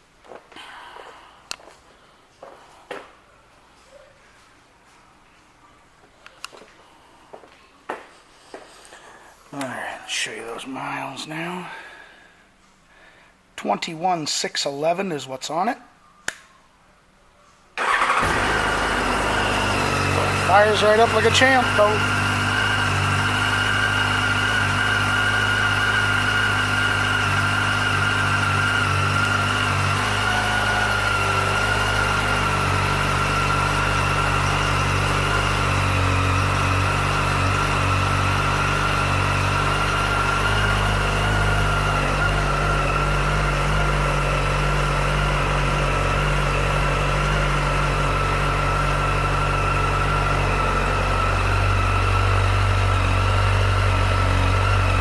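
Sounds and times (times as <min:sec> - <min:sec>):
motorcycle engine idling: 0:17.8 - 0:55.0.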